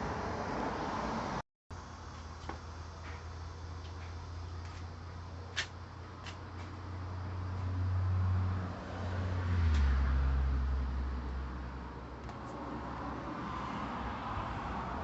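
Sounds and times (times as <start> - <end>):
low mechanical hum: 0.0 - 9.1.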